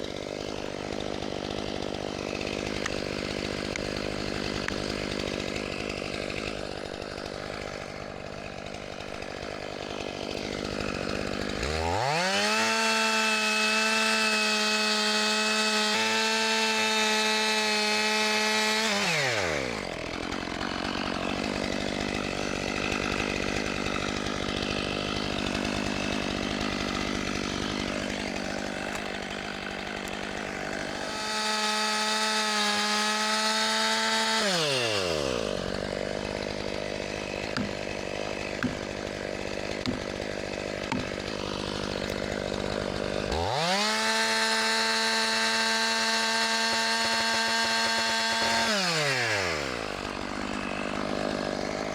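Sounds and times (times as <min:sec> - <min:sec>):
chainsaw cutting log: 0:00.0 - 0:51.9.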